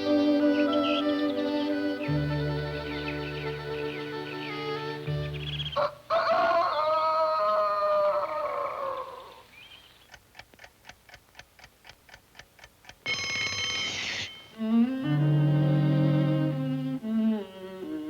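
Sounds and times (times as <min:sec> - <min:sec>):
orchestral music: 0:00.0 - 0:05.8, 0:13.2 - 0:17.4
bowed string music: 0:00.0 - 0:05.9, 0:14.5 - 0:18.0
clock ticking quickly: 0:10.1 - 0:14.7
alarm clock bell ringing: 0:13.0 - 0:14.8.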